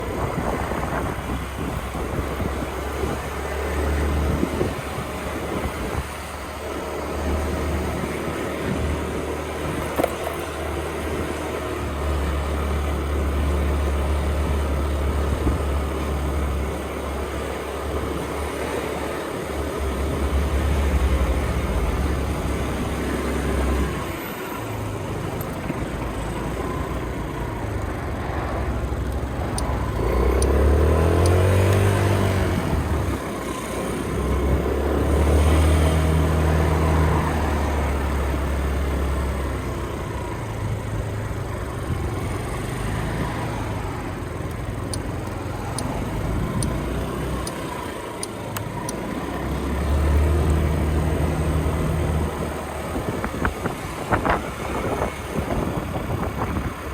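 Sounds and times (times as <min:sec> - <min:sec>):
wind rushing over microphone: 0:00.0 - 0:06.4, 0:52.2 - 0:56.9
motorcycle engine running: 0:00.0 - 0:56.9.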